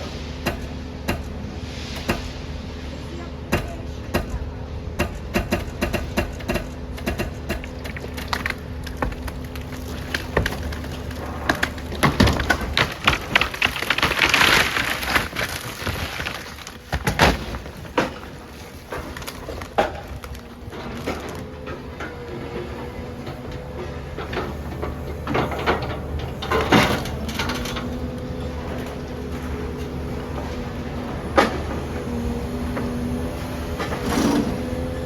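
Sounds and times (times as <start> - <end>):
low machine hum: 0.0 - 35.0
concrete breaking knocks: 5.0 - 22.2
rubble crashing down: 7.4 - 31.8.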